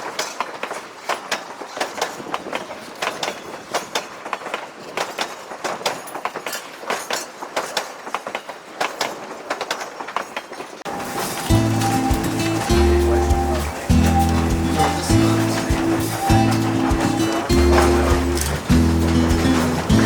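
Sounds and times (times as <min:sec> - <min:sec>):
railroad cars clacking on track: 0:00.0 - 0:20.0
music: 0:11.2 - 0:20.0.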